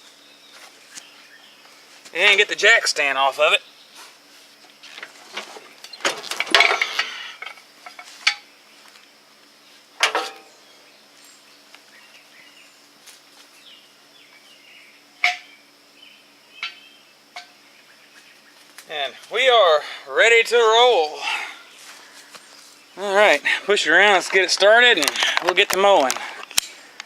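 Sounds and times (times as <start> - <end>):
metal jack stand clanking: 5.0 - 8.4, 10.0 - 10.5.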